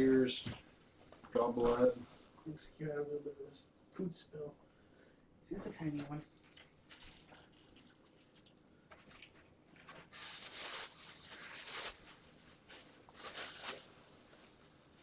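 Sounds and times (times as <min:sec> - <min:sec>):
rustling and handling noises: 0:05.5 - 0:15.0.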